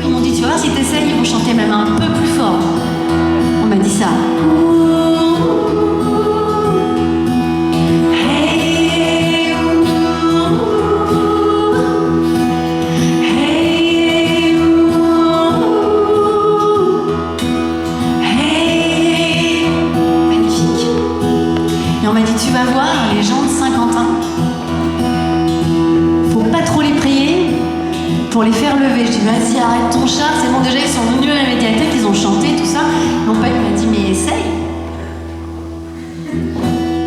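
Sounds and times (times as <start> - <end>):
group of voices singing: 18.2 - 22.5.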